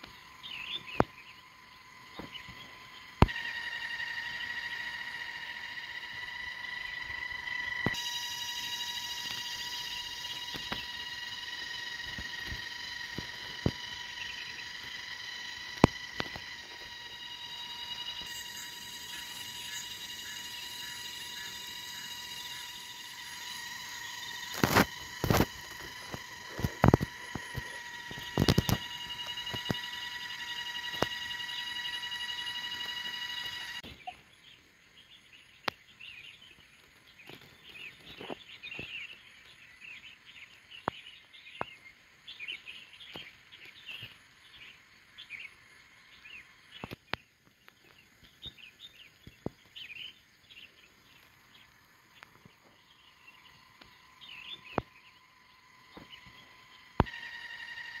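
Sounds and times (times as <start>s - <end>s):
high fluttering buzz: 0.0s - 34.1s, 51.1s - 58.0s
small birds chirping: 0.0s - 58.0s
sharp clicks: 7.0s - 20.5s, 22.4s - 32.0s.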